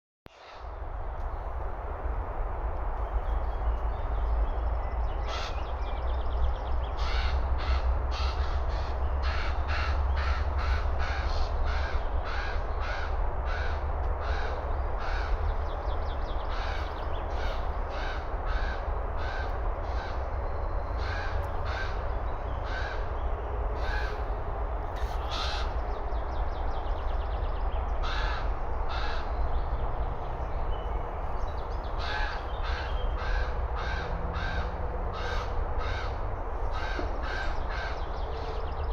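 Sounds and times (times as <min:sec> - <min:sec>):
steady low rumble: 0:00.6 - 0:38.9
ravens cawing: 0:05.2 - 0:05.6, 0:07.0 - 0:15.4, 0:16.4 - 0:20.3, 0:21.0 - 0:23.2, 0:23.8 - 0:24.4, 0:25.0 - 0:25.8, 0:28.0 - 0:29.4, 0:32.0 - 0:38.1.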